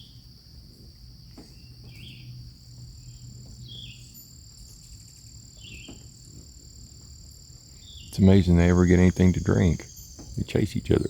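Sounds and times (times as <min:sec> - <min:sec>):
higher insect tone: 0:00.0 - 0:11.0
insect chorus: 0:00.0 - 0:11.0
hummingbird chirps: 0:01.2 - 0:11.0.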